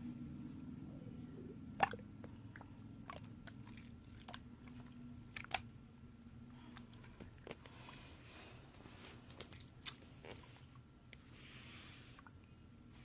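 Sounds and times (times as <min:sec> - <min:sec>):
slime squishing with clicks and pops: 0:05.2 - 0:06.1.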